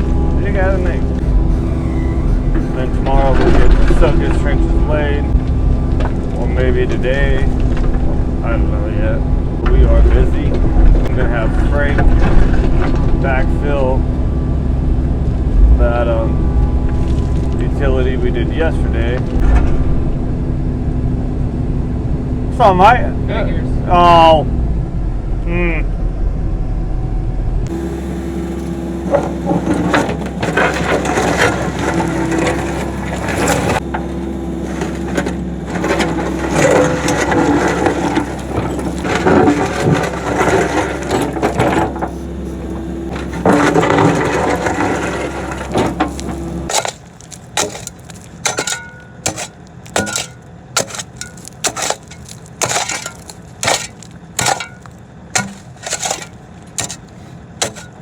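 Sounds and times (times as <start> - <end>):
bucket scraping through dirt and rock: 0.0 - 13.9, 16.9 - 19.4, 27.7 - 58.0
diesel engine running: 0.0 - 58.0
sharp irregular knocks and cracks: 43.1 - 58.0.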